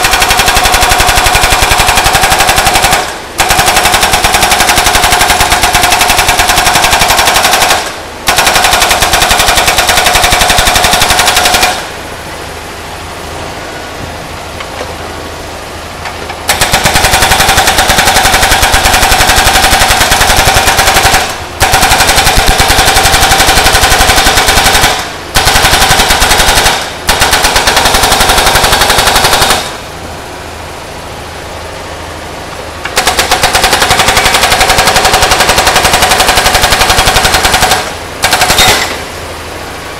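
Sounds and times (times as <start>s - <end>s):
hydraulic breaker hammering metal: 0.0s - 12.0s, 32.8s - 39.2s
excavator engine running: 0.0s - 39.9s.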